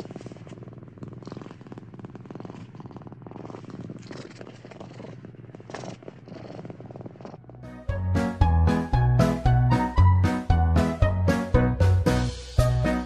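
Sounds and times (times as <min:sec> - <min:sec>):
cat purring: 0:00.0 - 0:10.2.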